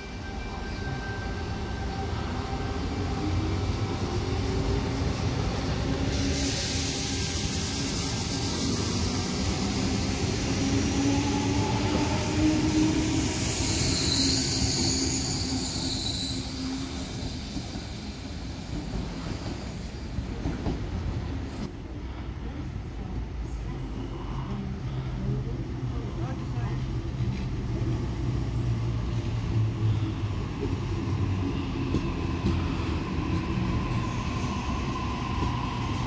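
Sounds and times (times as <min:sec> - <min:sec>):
train rumbling past: 0:00.0 - 0:36.0
high hiss of wheels on rail: 0:03.9 - 0:20.6.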